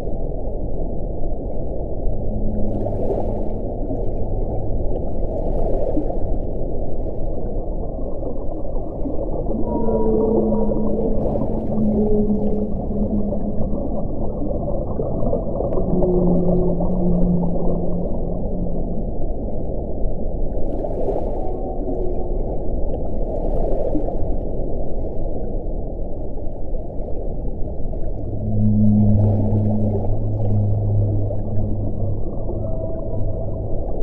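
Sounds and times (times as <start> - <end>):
low howling wind: 0.0 - 34.0.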